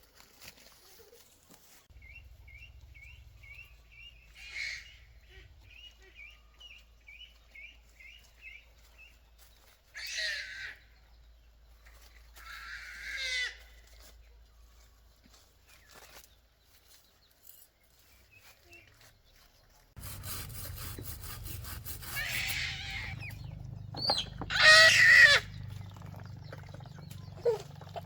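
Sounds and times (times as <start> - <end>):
chickens calling loudly: 20.0 - 28.0
chickens chirping: 20.1 - 28.0.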